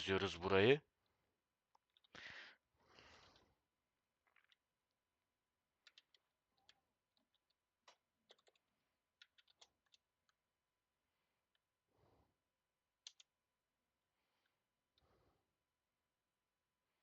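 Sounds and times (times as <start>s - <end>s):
faint keyboard typing: 5.8s - 10.4s, 13.0s - 13.4s.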